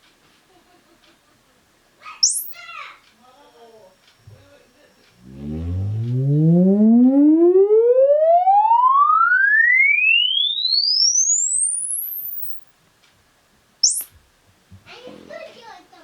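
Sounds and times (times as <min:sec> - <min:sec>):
sine wave frequency sweep: 0:05.2 - 0:12.7, 0:13.8 - 0:14.1.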